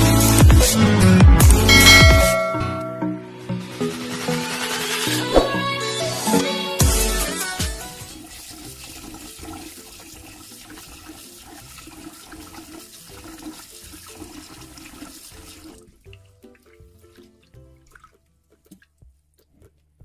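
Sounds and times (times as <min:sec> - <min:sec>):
rice washed by hand: 0:07.2 - 0:18.9
water dripping: 0:08.3 - 0:19.5.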